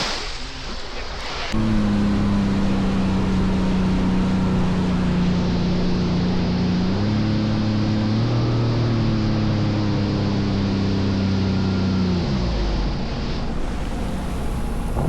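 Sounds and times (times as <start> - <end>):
water noise: 0.0 - 5.2, 13.4 - 15.0
wind: 0.0 - 15.0
jet ski engine running: 1.5 - 10.8, 11.7 - 15.0.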